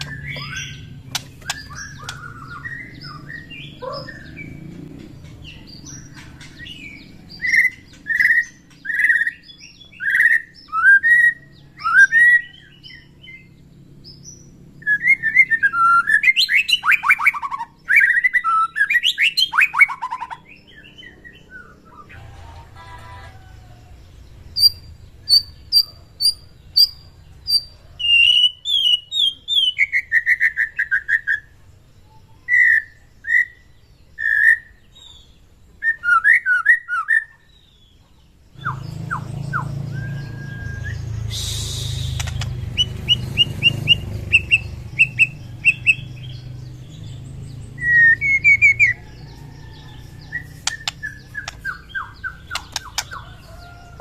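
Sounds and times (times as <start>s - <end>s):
songbird whistling song: 0.0s - 22.2s, 24.3s - 54.0s
harsh rasping bird note: 41.2s - 43.7s.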